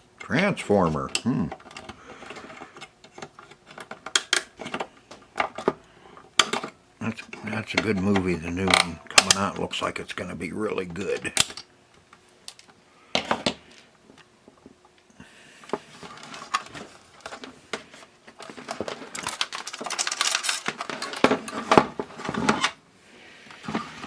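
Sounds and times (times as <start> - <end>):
tools clicking and scraping on plastic: 1.0 - 9.6, 11.1 - 11.7, 15.6 - 22.8.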